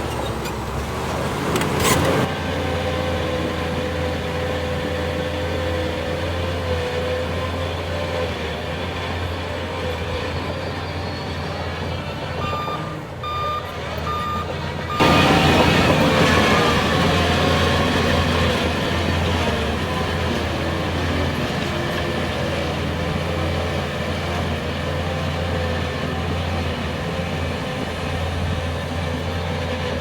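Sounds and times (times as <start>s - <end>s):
diesel engine running with whine: 0.0s - 30.0s
reversing alarm beeping: 12.2s - 17.8s.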